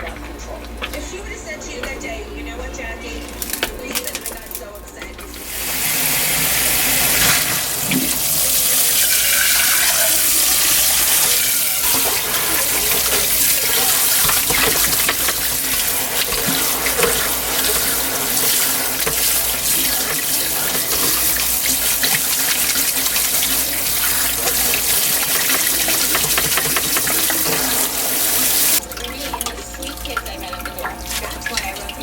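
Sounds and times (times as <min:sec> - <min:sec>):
tap running into sink: 0:05.4 - 0:31.9.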